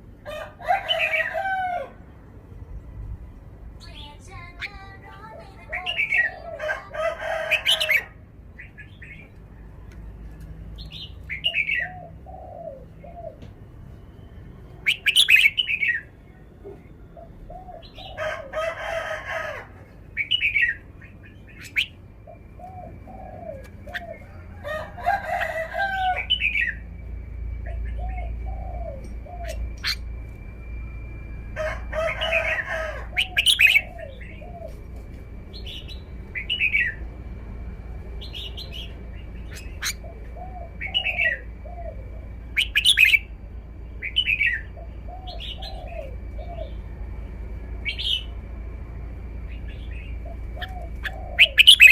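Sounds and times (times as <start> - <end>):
bird singing warbling phrases: 3.8 - 9.4, 10.8 - 13.5, 14.8 - 16.4, 20.2 - 24.5, 26.0 - 26.9, 27.6 - 30.2, 32.2 - 34.8, 35.5 - 37.1, 38.2 - 46.9, 49.4 - 51.9
other bird chirps and calls: 14.8 - 16.1, 20.2 - 26.8, 27.7 - 30.1, 32.0 - 34.8, 38.2 - 43.3, 49.5 - 51.9.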